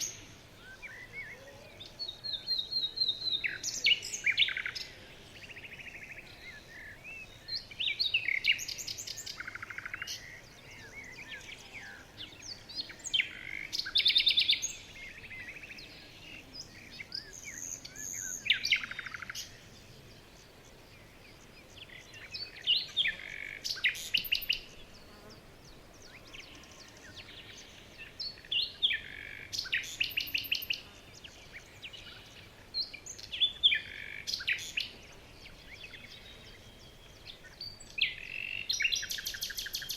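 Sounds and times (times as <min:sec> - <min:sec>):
faint steady background noise: 0:00.0 - 0:39.9
songbirds singing: 0:00.0 - 0:39.9.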